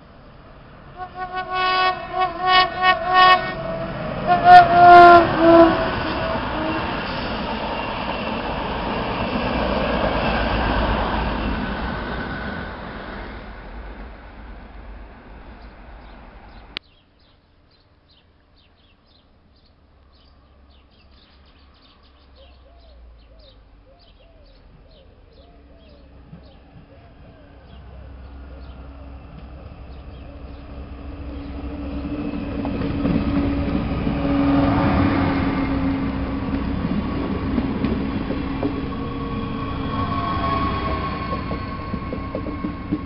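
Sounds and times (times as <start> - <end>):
train rail rumble: 0.0 - 16.8, 24.7 - 43.0
train horn blasts: 0.9 - 7.5, 33.0 - 36.4.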